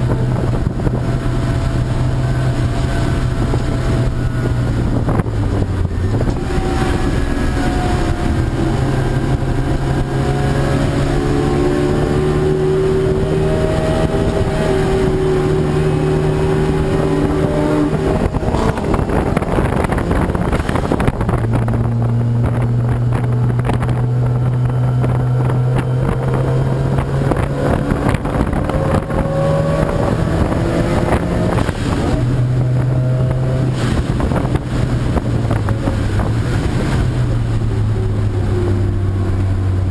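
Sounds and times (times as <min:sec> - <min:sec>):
race car engines: 0:00.0 - 0:39.9
wind buffeting microphone: 0:00.0 - 0:39.9.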